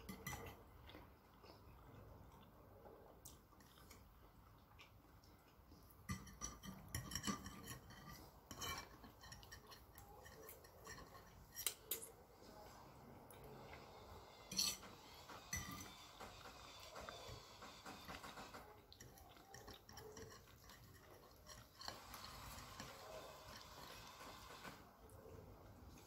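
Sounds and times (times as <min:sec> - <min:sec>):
fork clinking and scraping on plate: 0:00.0 - 0:00.6, 0:06.0 - 0:12.2, 0:14.4 - 0:17.2, 0:17.9 - 0:24.7.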